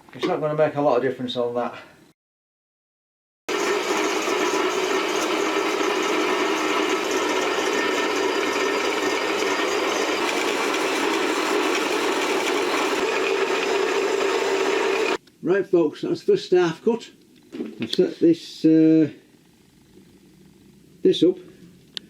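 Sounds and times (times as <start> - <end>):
metal-cutting bandsaw running: 3.5 - 15.2.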